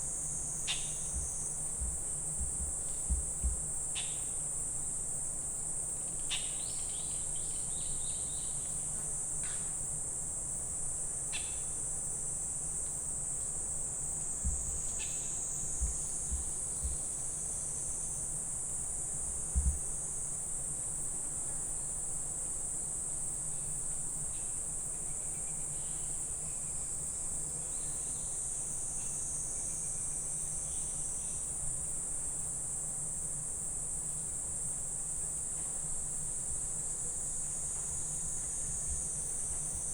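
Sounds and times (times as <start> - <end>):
insect chorus: 0.0 - 39.9
dull low thumps: 1.1 - 3.6, 14.4 - 14.9, 15.8 - 17.0.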